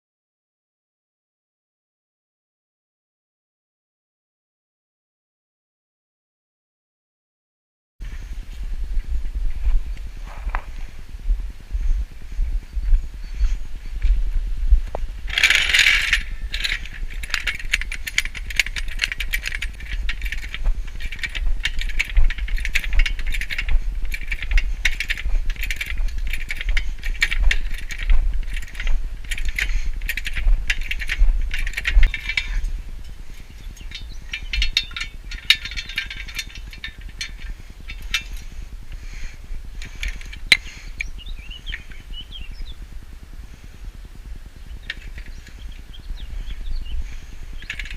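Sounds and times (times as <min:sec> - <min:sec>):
hand tools clicking and clinking: 0:15.3 - 0:42.0, 0:44.8 - 0:45.7, 0:46.4 - 0:47.9.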